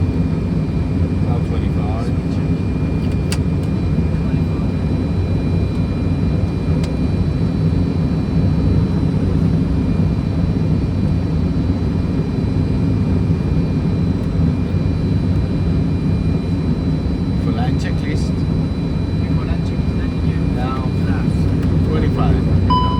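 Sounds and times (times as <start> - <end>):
airflow rush in cockpit: 0.0 - 22.9
jet engines humming: 0.0 - 22.9
faint high tones: 22.7 - 22.9.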